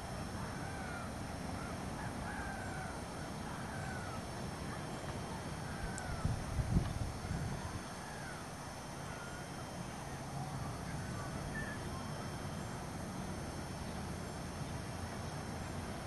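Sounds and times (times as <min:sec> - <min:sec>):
faint short bird calls: 0:10.8 - 0:12.2.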